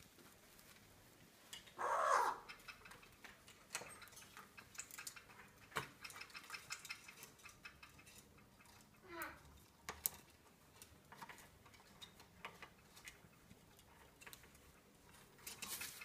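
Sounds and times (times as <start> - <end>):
parrot call: 1.8 - 2.6
beak clicking and tapping: 2.4 - 8.2.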